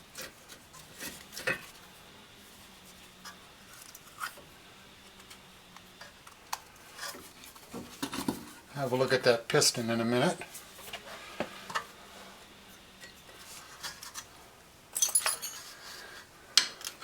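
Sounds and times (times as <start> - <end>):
metallic clinks of hand tools: 15.0 - 15.7.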